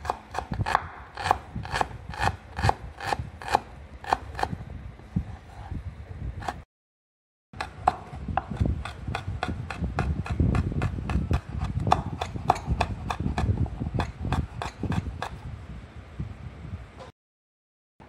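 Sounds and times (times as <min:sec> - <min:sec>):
knife chopping on wooden board: 0:00.0 - 0:04.6, 0:07.6 - 0:15.4.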